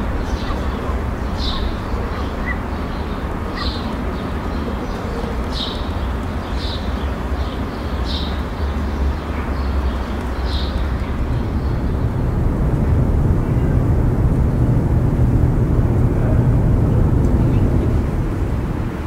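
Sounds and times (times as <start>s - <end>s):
small bird chirping: 0.0s - 4.0s
low rumble: 11.1s - 19.0s.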